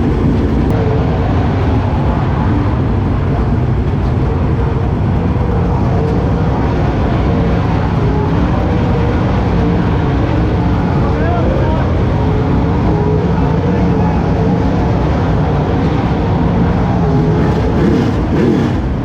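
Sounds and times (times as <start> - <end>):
race car engines running: 0.0 - 19.0.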